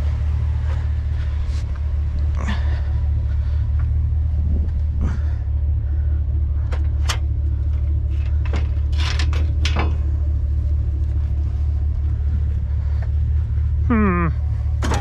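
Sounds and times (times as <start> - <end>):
truck engine rumbling: 0.0 - 15.0
sharp clanks and rattles: 1.6 - 11.4, 14.6 - 15.0.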